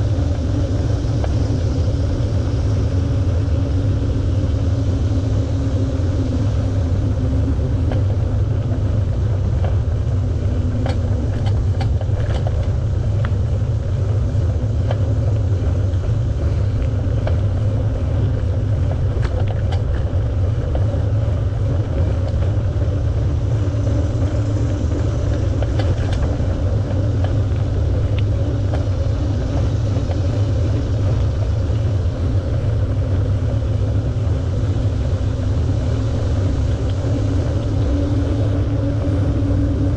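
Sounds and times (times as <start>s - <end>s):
bicycle tyres rolling on pavement: 0.0s - 39.9s
wind buffeting microphone: 0.0s - 39.9s
light clicks and ticks: 10.8s - 13.4s.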